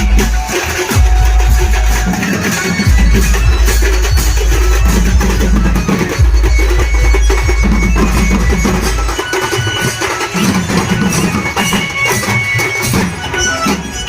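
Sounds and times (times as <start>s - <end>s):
loud music with drums: 0.0s - 14.0s
heavy deep bass: 1.0s - 2.1s.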